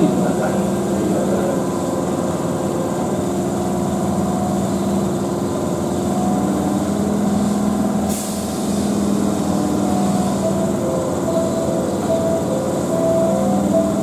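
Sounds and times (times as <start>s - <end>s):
train equipment humming: 0.0s - 14.0s
hiss: 7.3s - 9.0s
level electronic tones: 9.4s - 14.0s.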